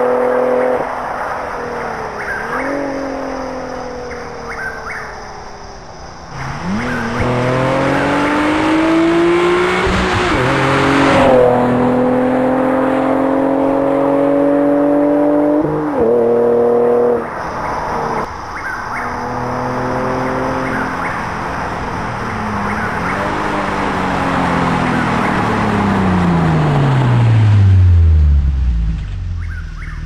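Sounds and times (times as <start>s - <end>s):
car exhaust accelerating: 6.3s - 18.3s, 19.0s - 30.0s.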